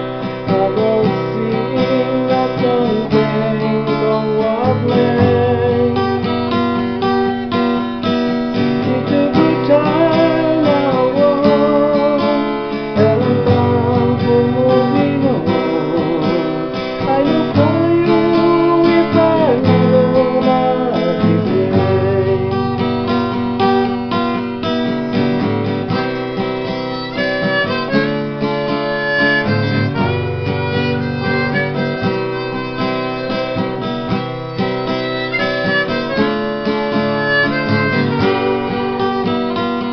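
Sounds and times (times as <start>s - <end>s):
acoustic guitar strumming: 0.0s - 39.9s
harmonica melody: 0.0s - 39.9s.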